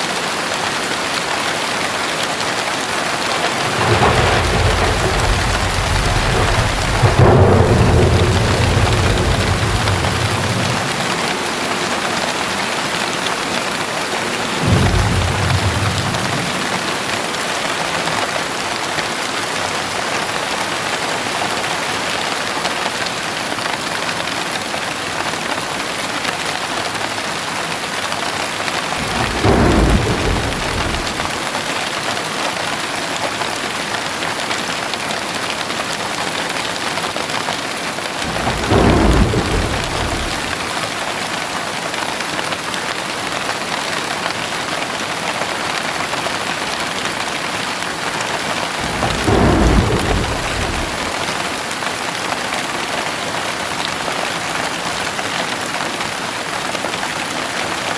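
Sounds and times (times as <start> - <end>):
heavy rain falling: 0.0 - 57.9
thunder rumbles: 3.1 - 18.3, 28.8 - 31.6, 38.2 - 41.0, 48.3 - 51.9.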